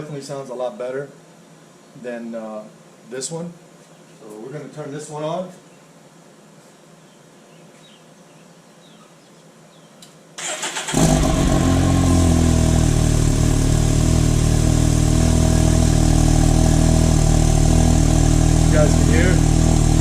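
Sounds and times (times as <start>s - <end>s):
engine idling: 10.5s - 20.0s.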